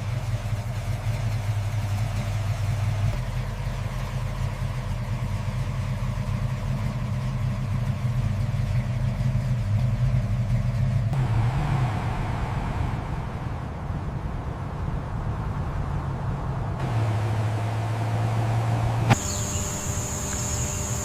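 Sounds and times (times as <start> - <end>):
car engine idling: 0.0 - 21.0
background hissing: 16.9 - 21.0.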